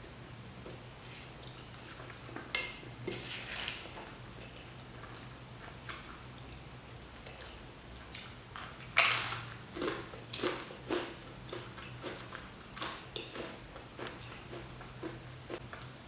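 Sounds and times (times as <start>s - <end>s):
crunchy chewing: 9.1s - 15.9s.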